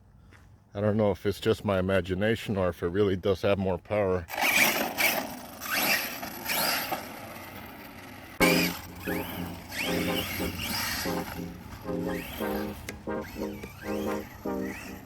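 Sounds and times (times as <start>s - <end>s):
rc truck electric motor whining: 4.3s - 15.0s
tyre and drivetrain noise: 4.3s - 15.0s.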